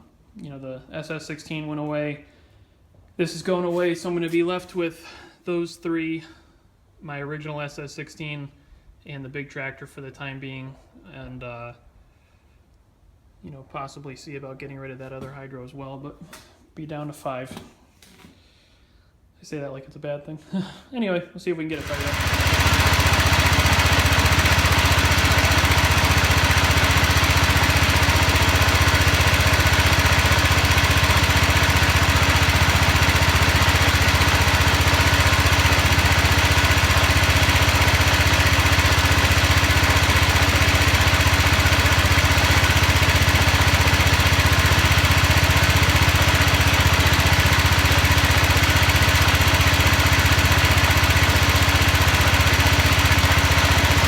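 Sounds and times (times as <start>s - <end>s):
garden tractor engine running: 21.7s - 54.0s.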